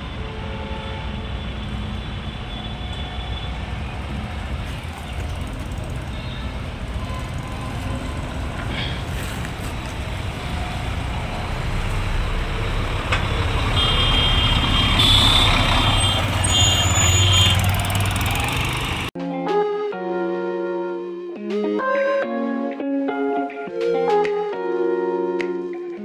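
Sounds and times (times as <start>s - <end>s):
diesel bus engine rumbling: 0.0s - 19.2s.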